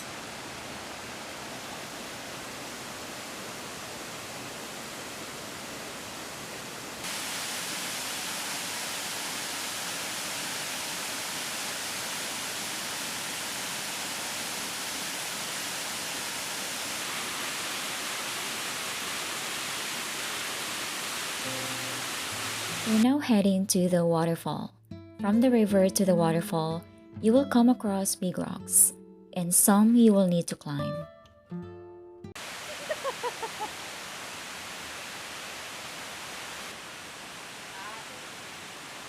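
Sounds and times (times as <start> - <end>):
river water rushing: 0.0 - 23.0, 32.4 - 39.0.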